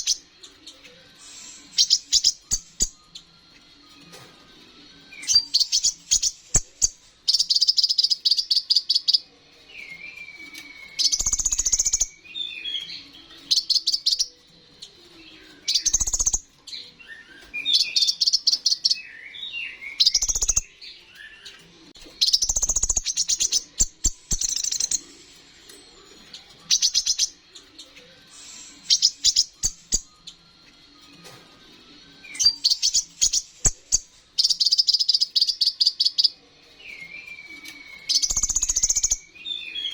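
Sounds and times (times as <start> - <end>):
bird chattering trills: 0.0 - 3.0, 22.2 - 25.1
bird whistled phrases: 32.2 - 39.9.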